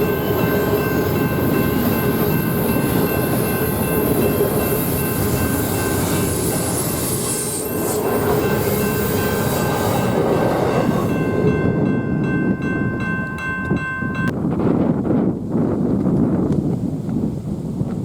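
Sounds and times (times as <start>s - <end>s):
train railcars rumbling: 0.0s - 14.4s
high-pitched wheel squeal: 2.1s - 11.2s.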